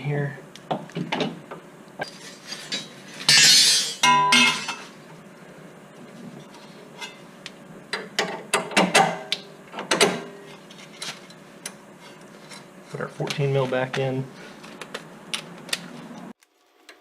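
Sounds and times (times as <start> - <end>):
metal tools clanking: 2.4 - 4.9.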